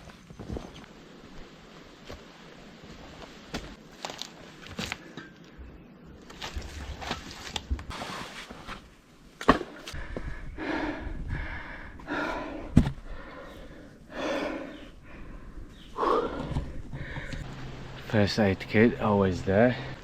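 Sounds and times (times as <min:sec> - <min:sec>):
person breathing hard: 0:09.9 - 0:17.5.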